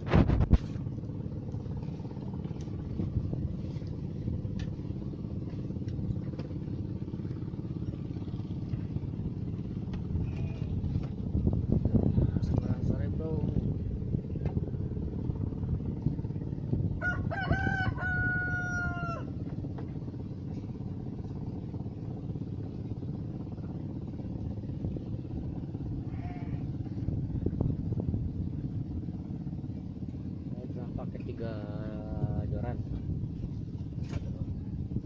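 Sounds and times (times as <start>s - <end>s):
low rumble: 0.0s - 35.0s
rooster crowing: 17.0s - 19.3s.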